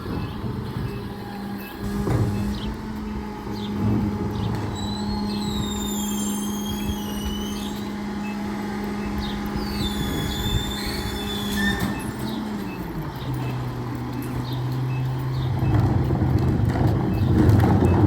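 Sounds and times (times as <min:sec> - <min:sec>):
truck engine humming: 0:00.0 - 0:18.0
high gliding squeaks: 0:04.6 - 0:08.4, 0:09.0 - 0:12.5.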